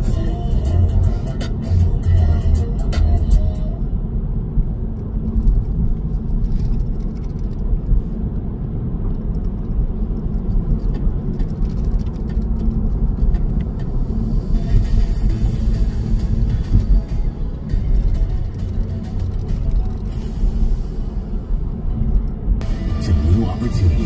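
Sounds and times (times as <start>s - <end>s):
light ticks and rattles: 4.9s - 14.0s.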